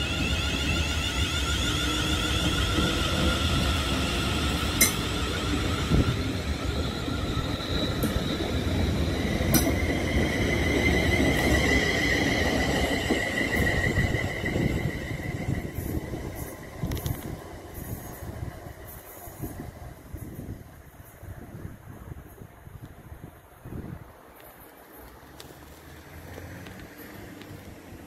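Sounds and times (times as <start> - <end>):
high whining tones: 0.0 - 18.2
train wheels rumbling on track: 0.0 - 23.2, 23.8 - 28.0.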